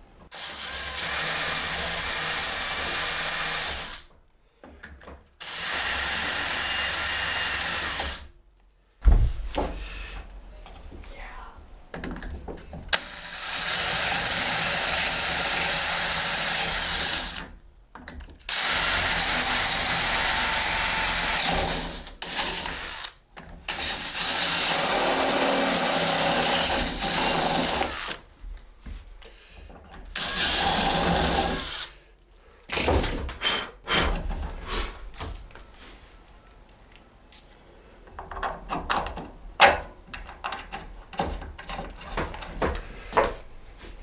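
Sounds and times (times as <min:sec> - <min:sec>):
power drill drilling: 0:00.3 - 0:04.1, 0:05.4 - 0:08.2, 0:13.0 - 0:17.5, 0:18.5 - 0:28.2, 0:30.2 - 0:32.0
short knocks: 0:09.0 - 0:10.3.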